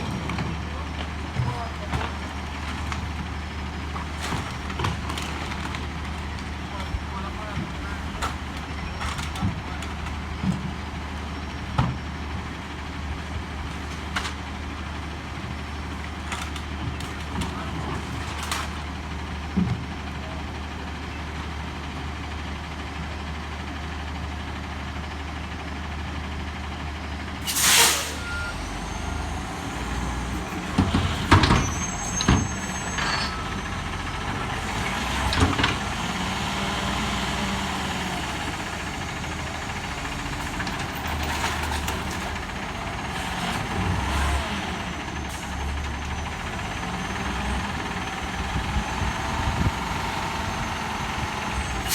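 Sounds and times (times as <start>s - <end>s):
diesel truck engine running: 0.0s - 51.9s
air brake hiss: 27.4s - 28.3s
reversing alarm beeps: 28.1s - 29.3s.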